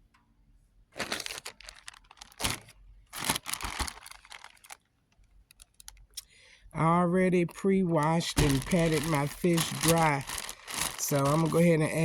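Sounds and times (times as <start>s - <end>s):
packaging crinkling and rustling: 1.0s - 6.1s, 8.0s - 12.0s
small clicks: 5.1s - 6.3s.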